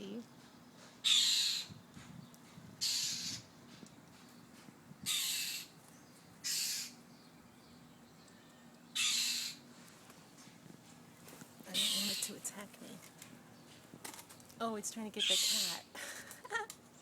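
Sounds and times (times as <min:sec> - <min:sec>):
bird harsh alarm calls: 0:01.0 - 0:01.8, 0:02.8 - 0:03.5, 0:05.0 - 0:05.8, 0:06.4 - 0:07.0, 0:08.9 - 0:09.7, 0:11.7 - 0:12.4, 0:15.2 - 0:15.9.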